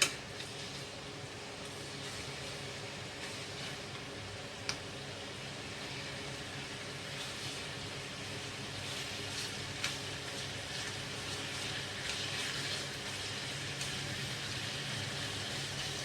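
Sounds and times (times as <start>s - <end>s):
meat sizzling in hot oil: 0.0s - 16.0s.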